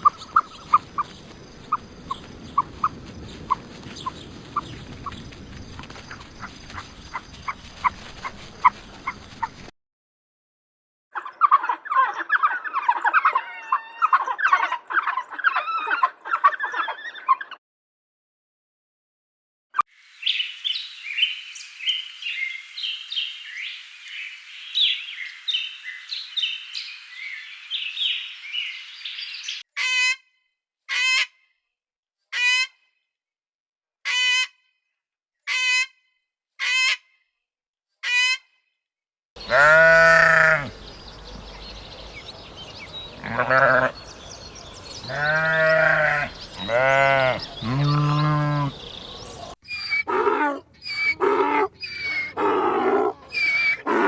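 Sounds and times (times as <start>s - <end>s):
long bleats: 39.4s - 40.8s, 43.2s - 44.0s, 45.0s - 48.8s
high chirping: 39.4s - 52.6s, 53.3s - 53.9s
short high animal calls: 49.6s - 54.0s.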